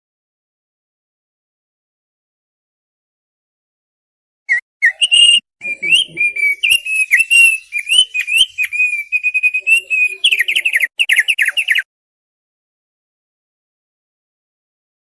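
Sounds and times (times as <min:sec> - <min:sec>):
bird singing whistled chirps: 0:04.5 - 0:11.9.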